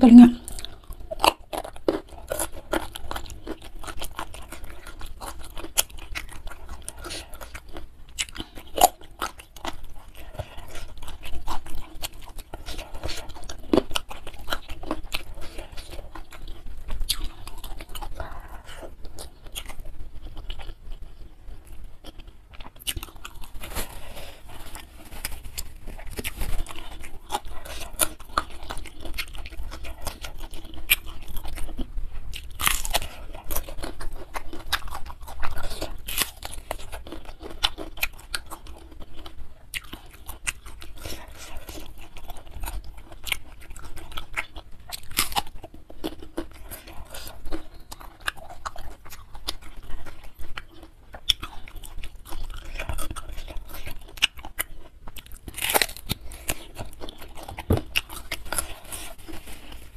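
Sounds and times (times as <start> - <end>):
crisp crunching and chewing: 0.0 - 59.9.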